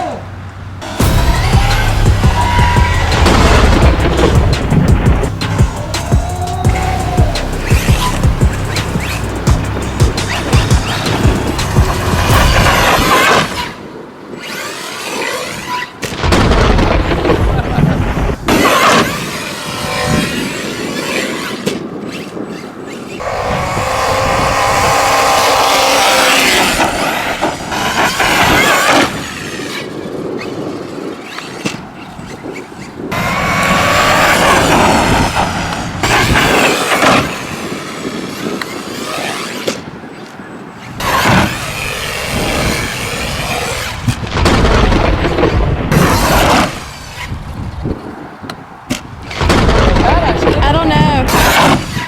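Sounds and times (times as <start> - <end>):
electric motor whining: 0.8 - 13.8, 19.1 - 30.6
toy truck rolling noise: 18.6 - 44.2.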